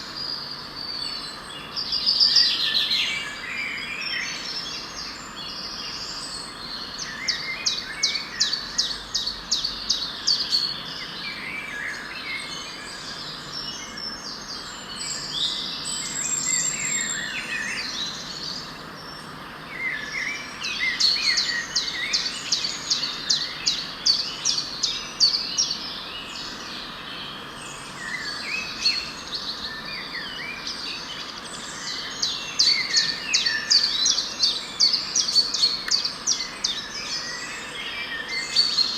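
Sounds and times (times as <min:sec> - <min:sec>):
birds singing and calling: 0:00.0 - 0:38.9
steady background hiss: 0:00.0 - 0:38.9.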